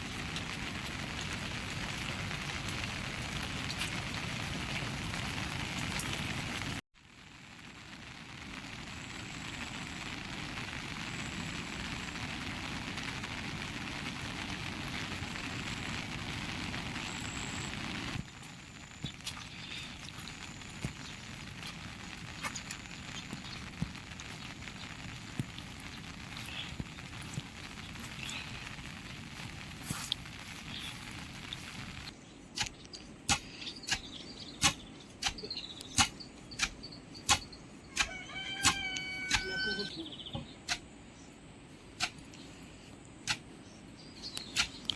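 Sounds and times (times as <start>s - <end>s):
steady rain falling: 0.0s - 40.2s
sharp evenly paced knocks: 32.6s - 38.8s.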